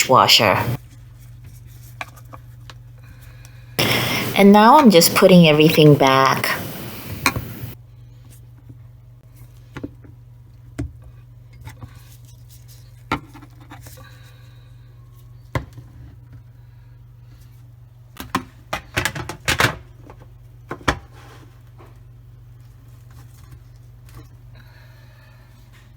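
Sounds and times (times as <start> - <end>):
steady low hum: 3.8 - 7.8
plastic parts clicking and knocking: 18.2 - 21.0.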